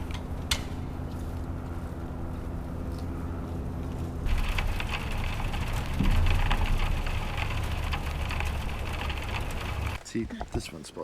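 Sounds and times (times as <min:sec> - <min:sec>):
steady low hum: 0:00.0 - 0:11.0
rain pattering: 0:04.3 - 0:10.7.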